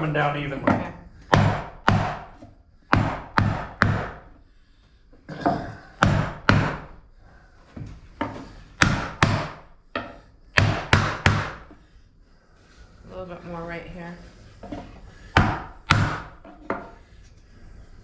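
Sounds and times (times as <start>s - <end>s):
sharp knocks on wood: 0.7s - 2.3s, 8.8s - 11.7s, 15.4s - 16.8s.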